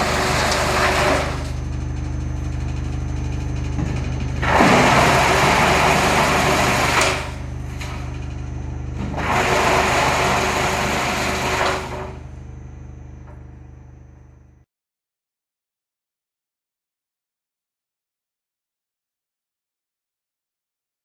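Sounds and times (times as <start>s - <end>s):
wood chipper drone: 0.0s - 14.6s.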